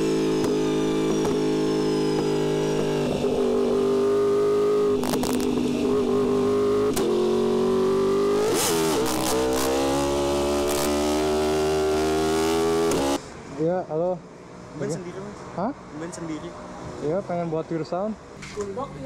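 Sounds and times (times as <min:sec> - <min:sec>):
motorcycle engine at high revs: 0:00.0 - 0:13.2.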